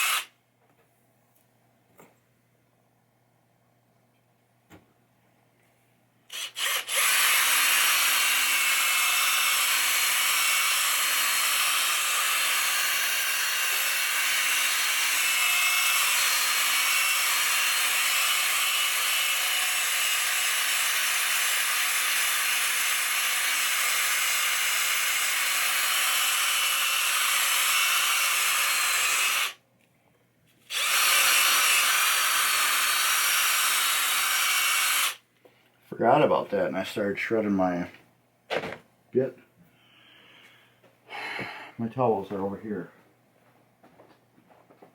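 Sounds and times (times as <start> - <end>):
electric drill polishing: 0.0 - 0.3, 6.3 - 29.6, 30.7 - 35.2.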